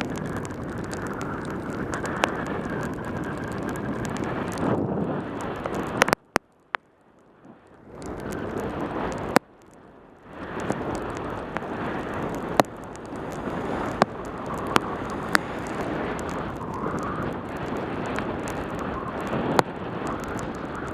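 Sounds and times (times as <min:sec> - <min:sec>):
wind rushing over microphone: 0:00.0 - 0:06.4, 0:07.4 - 0:20.9
sharp clicks: 0:05.6 - 0:06.8, 0:10.6 - 0:20.9.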